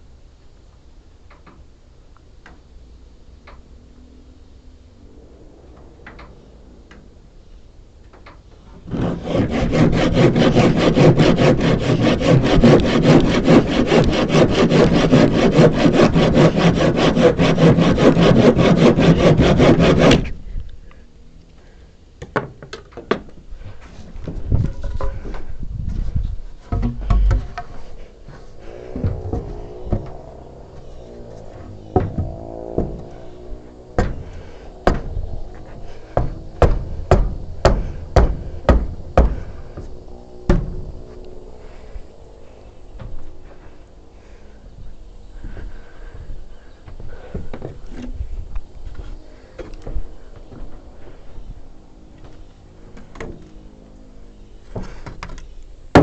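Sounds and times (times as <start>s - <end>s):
handsaw cutting wood: 8.8s - 20.4s, 28.6s - 39.9s
handling of wood: 22.2s - 41.2s
hammer striking wooden frame: 26.7s - 27.7s, 31.9s - 33.2s, 34.0s - 35.2s, 36.2s - 39.5s.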